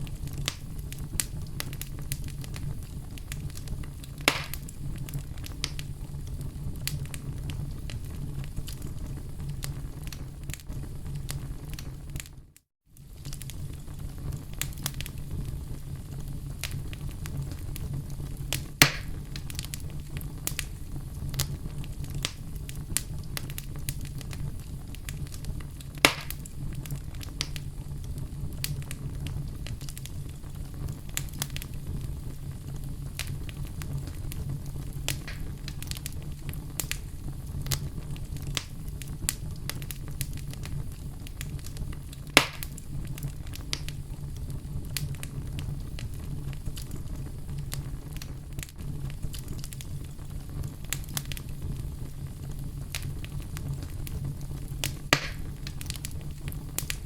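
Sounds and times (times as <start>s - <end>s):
campfire crackling: 0.0s - 57.0s
fire pops: 0.0s - 57.0s.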